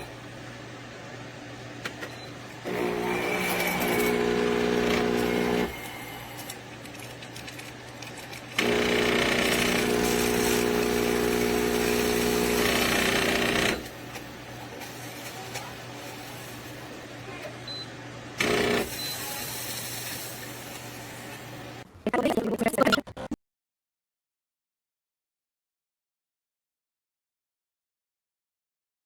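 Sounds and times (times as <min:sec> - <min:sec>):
espresso machine pump buzzing: 0:02.6 - 0:06.5, 0:08.6 - 0:14.0, 0:18.4 - 0:19.5.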